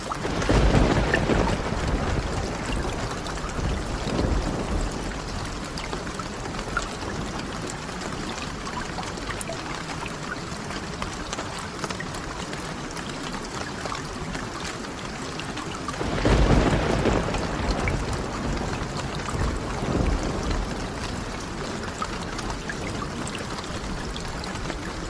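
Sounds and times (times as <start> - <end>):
steady rain: 0.0 - 25.0.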